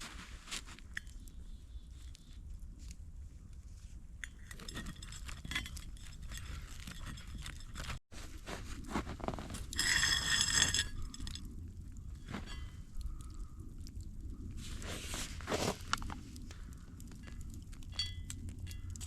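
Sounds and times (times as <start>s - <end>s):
objects scraping and clinking: 4.2s - 8.0s, 9.2s - 11.5s, 12.2s - 12.8s, 14.6s - 16.2s.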